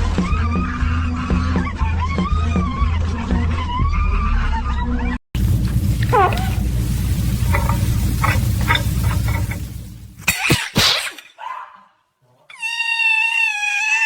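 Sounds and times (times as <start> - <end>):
low rumble: 5.4 - 10.2
animal's long high cry: 6.0 - 6.7, 12.5 - 14.0.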